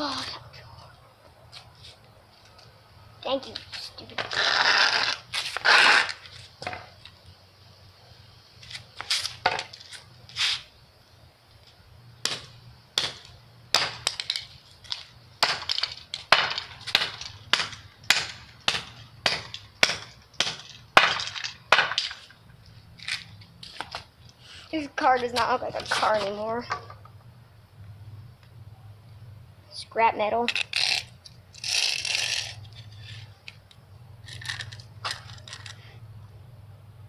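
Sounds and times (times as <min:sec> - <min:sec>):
hockey stick whacking toy car: 0:04.1 - 0:06.9, 0:12.3 - 0:22.4.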